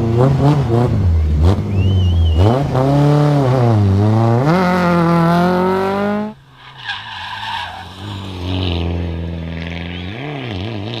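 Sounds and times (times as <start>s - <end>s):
rally car engine at full throttle: 0.0s - 11.0s
tyre squeal: 6.5s - 8.5s.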